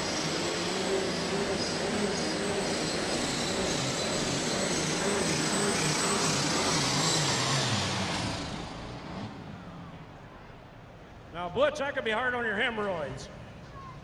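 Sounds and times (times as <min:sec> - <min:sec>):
high whine: 0:00.0 - 0:10.0
diesel tractor engine at full throttle: 0:00.0 - 0:10.8.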